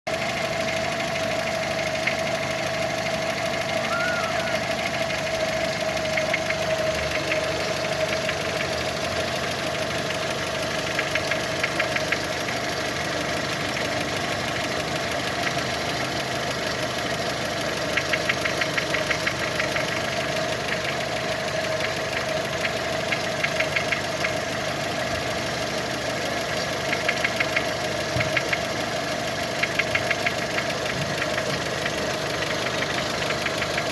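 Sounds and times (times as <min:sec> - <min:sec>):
engine idling: 0:00.1 - 0:33.9
rapid sharp engine knocks: 0:26.4 - 0:28.8.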